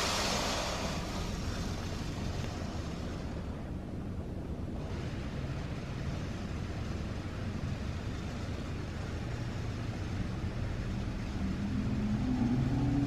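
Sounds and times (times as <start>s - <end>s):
car wash machinery rumbling: 0.0s - 13.0s.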